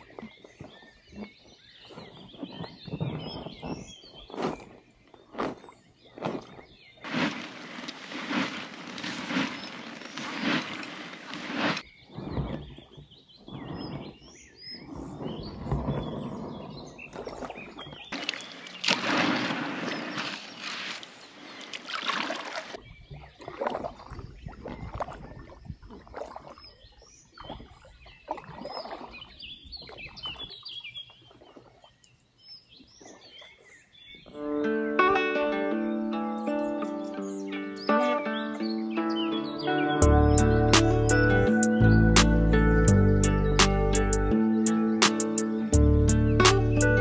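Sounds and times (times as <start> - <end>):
paddle splashing in water: 0.0 - 32.0
small birds chirping: 0.0 - 34.6, 35.7 - 47.0.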